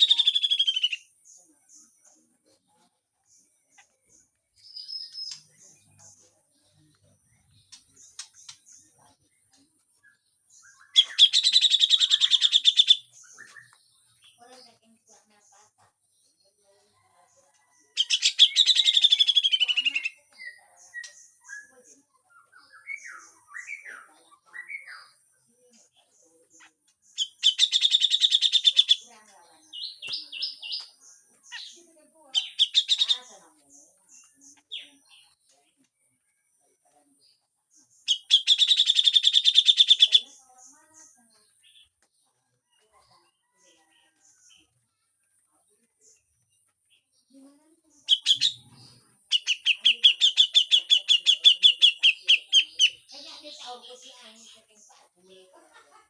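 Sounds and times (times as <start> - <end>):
bird harsh rattling chatter: 48.1 - 54.6.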